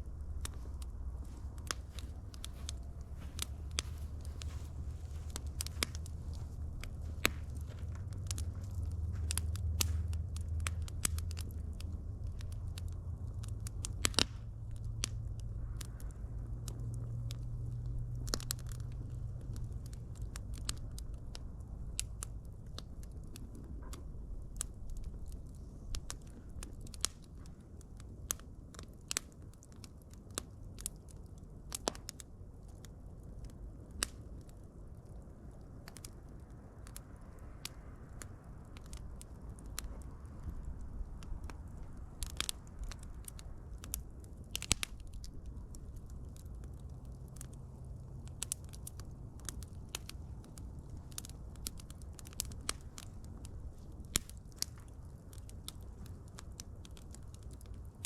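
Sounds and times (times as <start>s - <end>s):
fire popping and snapping: 0.0s - 58.0s
low rumble of flames: 0.0s - 58.0s.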